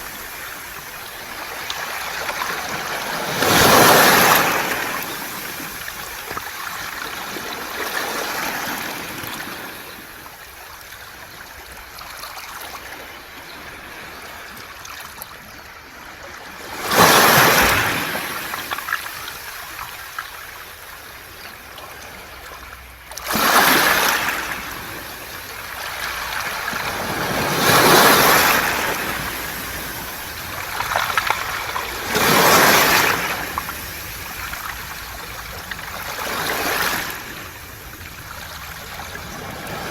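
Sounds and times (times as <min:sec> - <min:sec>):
waves washing up a pebble beach: 0:00.0 - 0:10.5, 0:16.5 - 0:20.9, 0:23.1 - 0:39.9.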